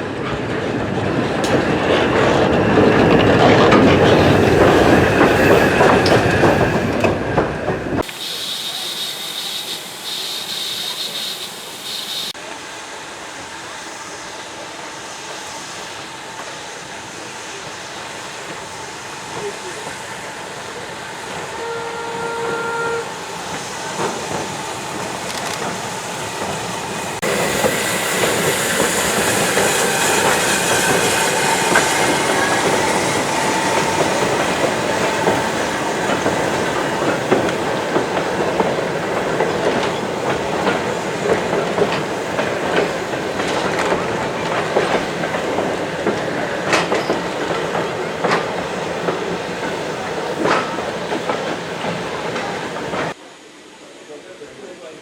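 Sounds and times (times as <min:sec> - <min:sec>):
train wheels clattering over rails: 0:00.0 - 0:12.4, 0:16.3 - 0:53.2
train whistle: 0:08.0 - 0:12.6, 0:21.4 - 0:24.1.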